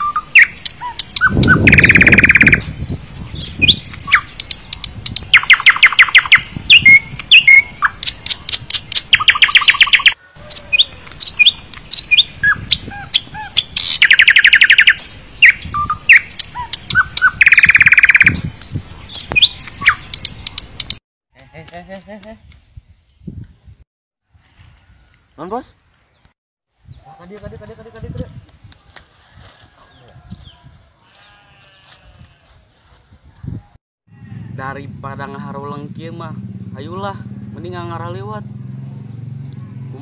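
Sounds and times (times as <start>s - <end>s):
bird chirps and whistles: 0.0s - 10.2s, 11.2s - 20.7s
bird trilling: 0.0s - 21.0s.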